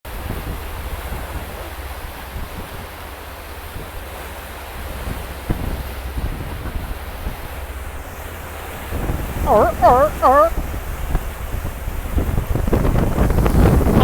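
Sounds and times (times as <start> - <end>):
wind buffeting microphone: 4.8 - 14.0.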